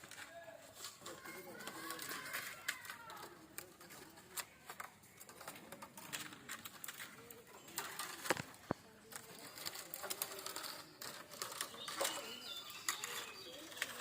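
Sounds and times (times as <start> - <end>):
bamboo strips clicking: 0.9 - 14.0.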